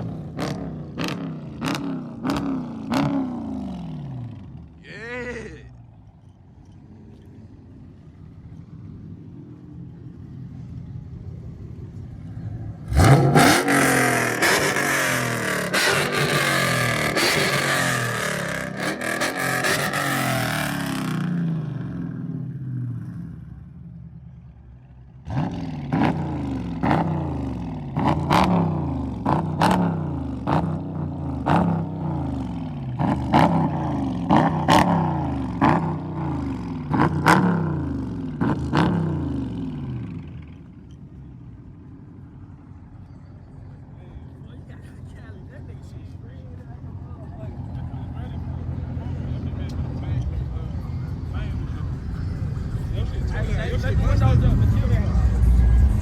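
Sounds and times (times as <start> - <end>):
engine revving: 0.0 - 4.9, 12.2 - 23.4, 25.2 - 40.7, 47.5 - 56.0
car engine accelerating: 0.0 - 56.0.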